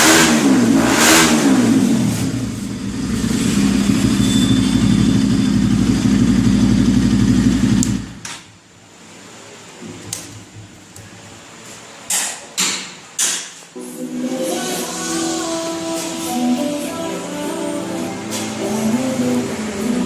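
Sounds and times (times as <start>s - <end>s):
motorcycle engine idling: 1.9s - 8.2s.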